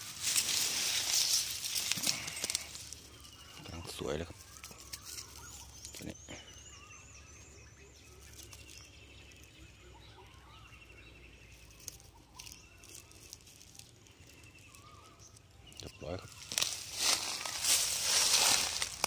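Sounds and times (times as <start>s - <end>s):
birds calling: 0.0s - 19.0s.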